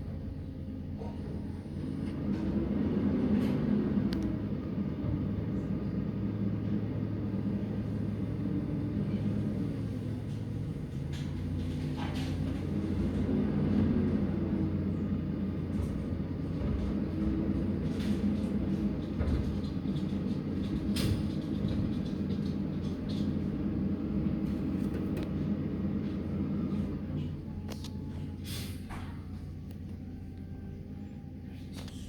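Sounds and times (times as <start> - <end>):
diesel truck engine humming: 0.0 - 32.0.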